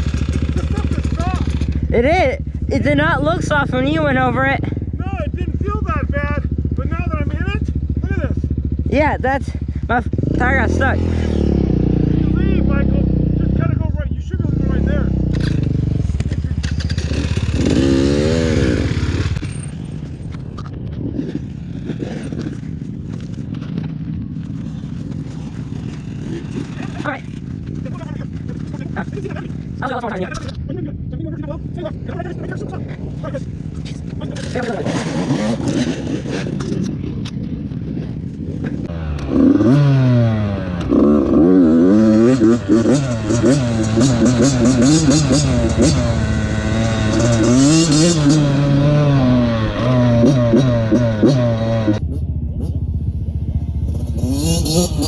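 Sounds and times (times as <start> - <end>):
engine clatter: 0.0 - 12.5, 15.1 - 30.6, 42.3 - 55.0
dirt bike engine revving: 0.0 - 20.2, 21.0 - 30.2, 33.8 - 37.1, 38.6 - 55.0.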